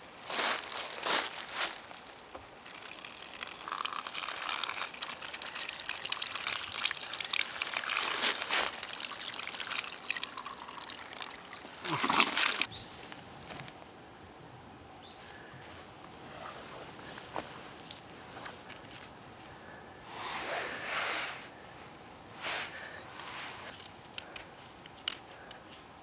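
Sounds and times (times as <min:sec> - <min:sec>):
water pouring and trickling: 0:00.4 - 0:12.7
water splashing: 0:02.6 - 0:12.7.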